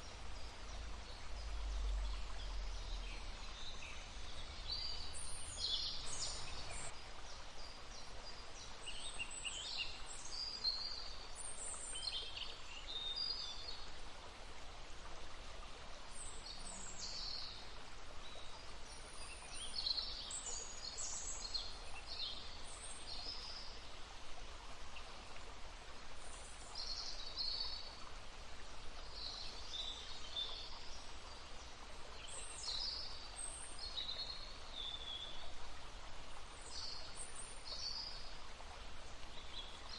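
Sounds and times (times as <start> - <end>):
songbirds chirping and trilling: 0.0 - 7.0
babbling brook: 0.0 - 39.9.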